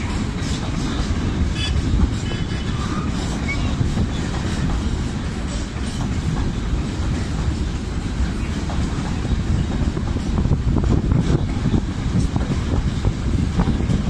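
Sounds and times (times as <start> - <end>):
train running on rails: 0.0 - 14.0.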